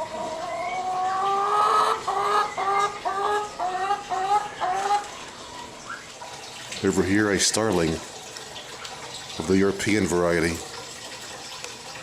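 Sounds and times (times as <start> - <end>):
hen clucking: 0.0 - 5.7.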